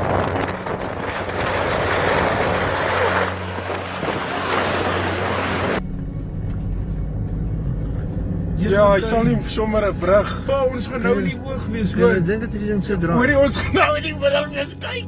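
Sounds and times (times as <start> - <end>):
wind rushing over microphone: 0.0 - 5.8
car engine hum: 0.0 - 15.0.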